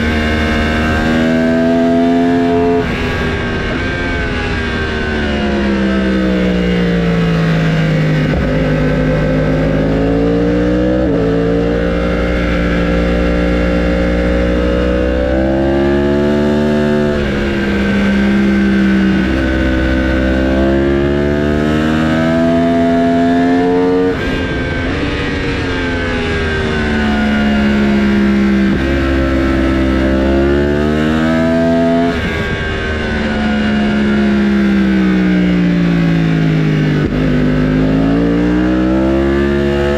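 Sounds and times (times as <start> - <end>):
racing motorcycle engines: 0.0 - 39.9.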